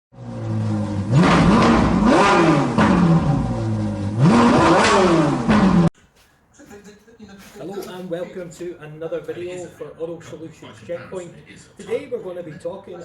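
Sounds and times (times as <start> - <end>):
car engine idling and revving: 0.1 - 5.9.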